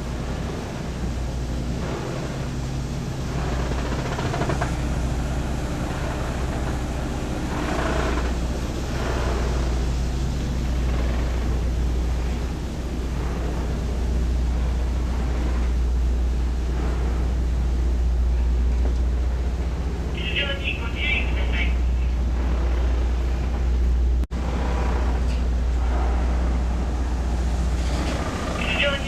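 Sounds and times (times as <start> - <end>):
ferry diesel engines droning: 0.0 - 29.0.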